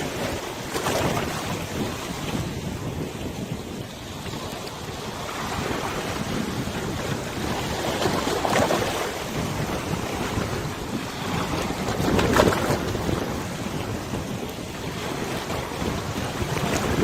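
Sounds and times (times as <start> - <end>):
wind buffeting microphone: 0.0 - 17.0
water washing and splashing: 4.0 - 17.0.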